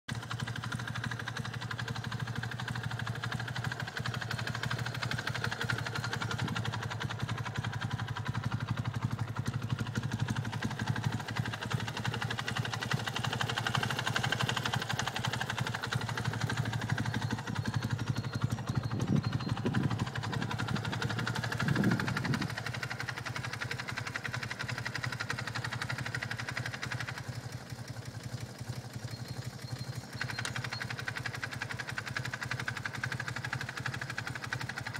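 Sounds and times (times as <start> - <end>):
motorcycle engine idling: 0.1 - 34.9
ticking rattle: 0.8 - 34.9.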